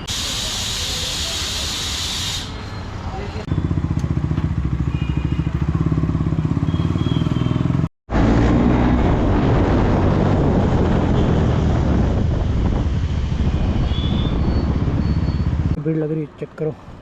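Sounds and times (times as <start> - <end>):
motorcycle engine running: 3.5 - 7.9
wind noise on microphone: 8.5 - 15.8.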